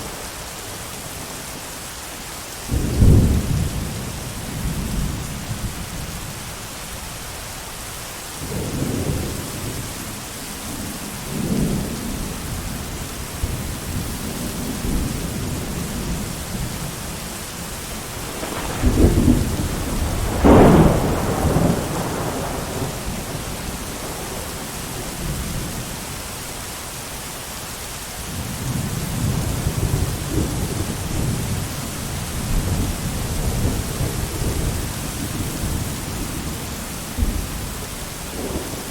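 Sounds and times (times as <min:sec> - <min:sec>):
heavy rain: 0:00.0 - 0:38.9
rolling thunder: 0:02.7 - 0:06.2, 0:11.2 - 0:26.1, 0:28.3 - 0:38.9.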